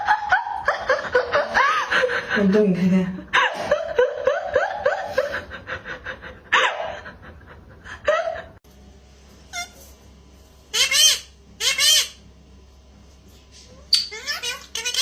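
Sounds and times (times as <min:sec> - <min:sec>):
person laughing: 0:00.0 - 0:08.6.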